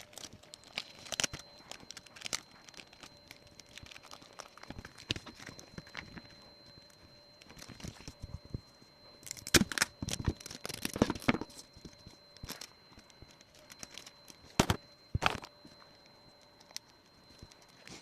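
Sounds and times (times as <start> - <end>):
paper and tape crinkling: 0.0 - 18.0.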